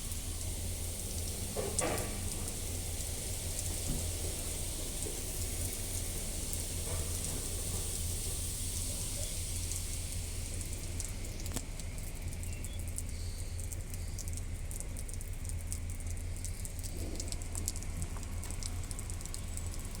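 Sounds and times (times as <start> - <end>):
water dripping and pattering: 0.0 - 20.0.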